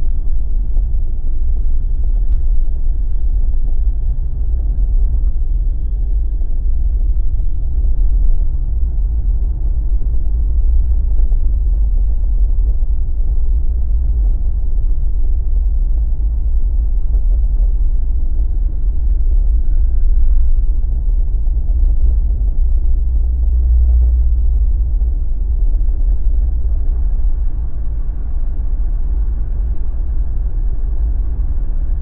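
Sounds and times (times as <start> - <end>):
car driving road rumble: 0.0 - 32.0.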